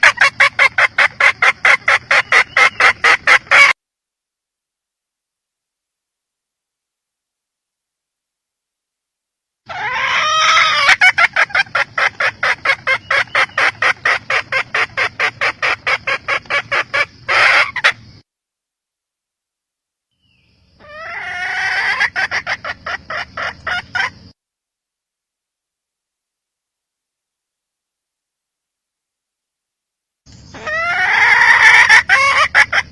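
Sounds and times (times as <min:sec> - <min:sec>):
hen clucking: 0:00.0 - 0:03.8, 0:09.7 - 0:18.2, 0:20.8 - 0:24.3, 0:30.5 - 0:32.9.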